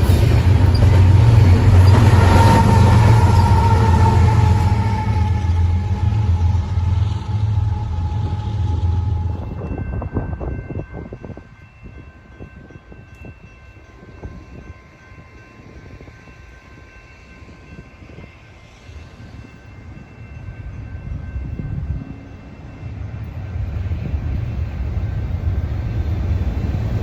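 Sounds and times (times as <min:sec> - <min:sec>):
train wheels clicking: 0:00.0 - 0:09.8
train rumble: 0:00.0 - 0:27.0.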